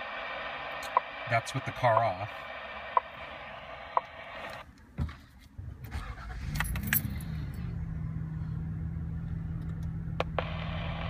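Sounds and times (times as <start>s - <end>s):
car engine starting and idling: 0.0s - 11.0s
keys jangling in ignition: 6.0s - 7.7s.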